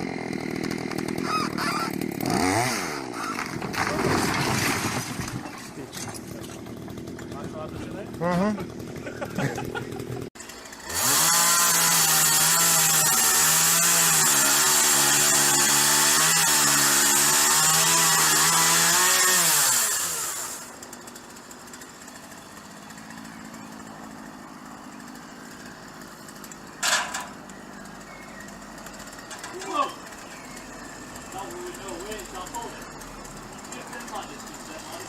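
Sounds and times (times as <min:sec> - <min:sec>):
chainsaw revving: 0:00.0 - 0:35.0.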